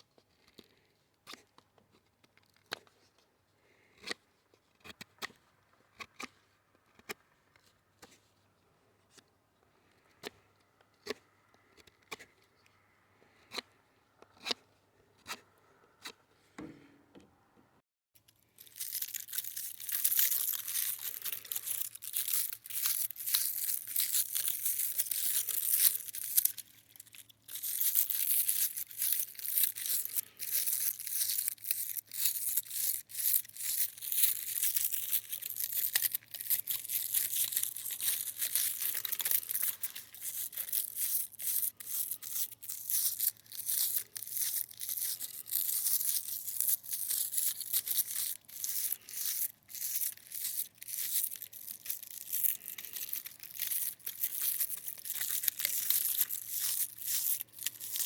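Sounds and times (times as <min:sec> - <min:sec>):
dry crinkling and crackling: 0:18.2 - 0:58.0.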